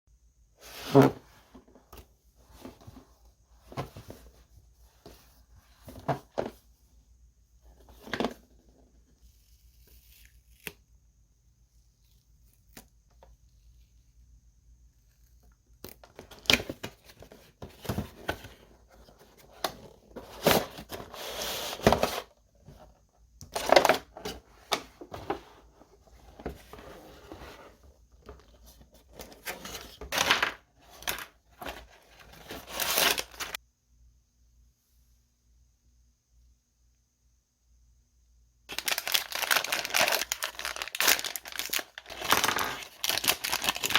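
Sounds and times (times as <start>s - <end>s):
packaging rustling and crinkling: 28.3s - 33.6s, 38.7s - 43.9s.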